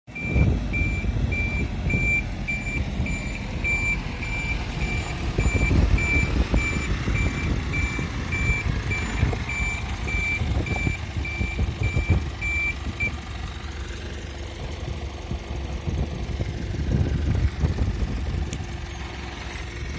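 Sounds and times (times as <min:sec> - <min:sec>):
truck reversing alarm beeping: 0:00.1 - 0:13.7
truck engine running: 0:00.1 - 0:19.9.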